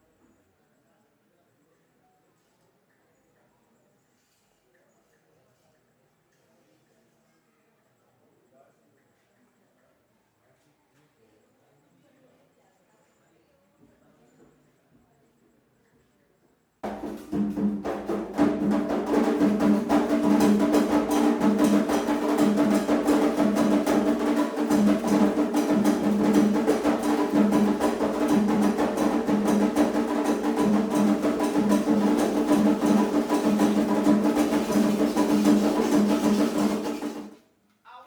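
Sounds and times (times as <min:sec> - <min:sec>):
fast ritual drumming: 0:16.8 - 0:37.4
wood-block-like strikes: 0:16.8 - 0:37.4.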